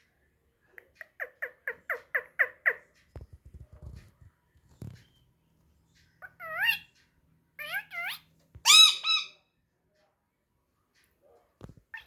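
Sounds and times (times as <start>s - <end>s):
parrot squawking: 0.8s - 2.9s, 6.2s - 6.9s, 7.6s - 9.4s.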